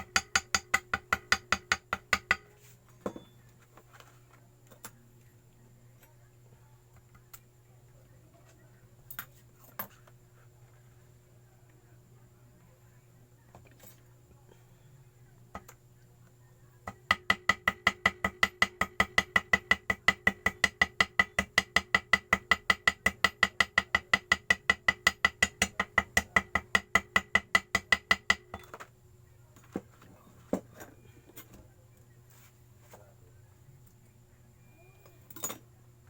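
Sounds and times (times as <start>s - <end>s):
small hammer tapping on metal: 0.0s - 3.3s, 16.8s - 28.8s.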